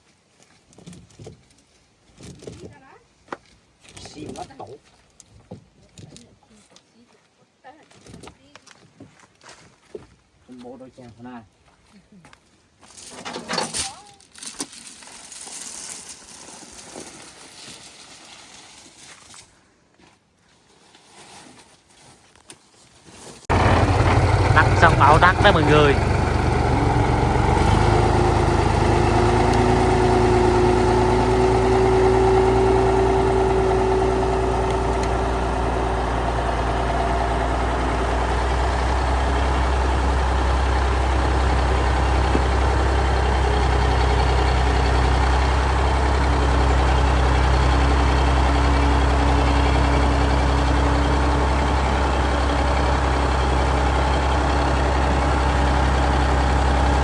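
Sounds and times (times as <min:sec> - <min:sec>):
truck engine droning: 0:23.5 - 0:57.0.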